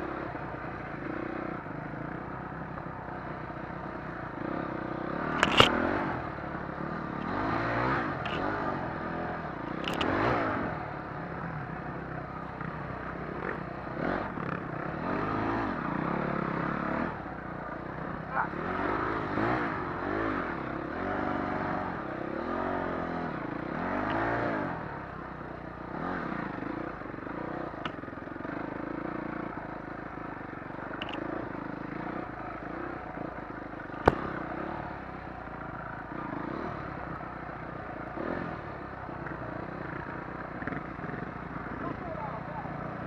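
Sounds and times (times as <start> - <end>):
dirt bike engines revving: 0.0 - 43.0
sharp click: 5.3 - 5.8, 31.0 - 31.2.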